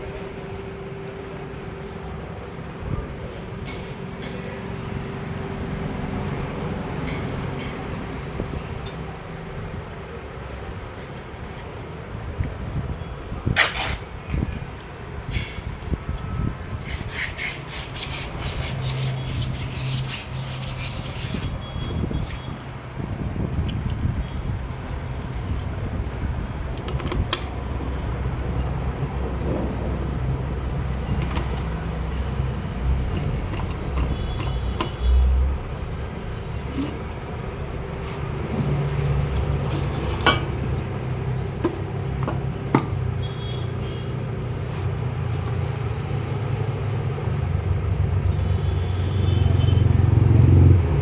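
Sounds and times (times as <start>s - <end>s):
traffic rumble: 0.0s - 51.0s
sharp clicks and knocks: 33.0s - 35.1s.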